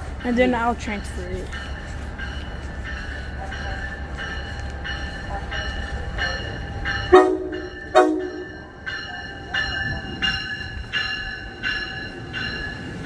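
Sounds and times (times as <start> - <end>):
locomotive bell ringing: 0.0 - 13.0
train horn blasts: 7.0 - 8.8.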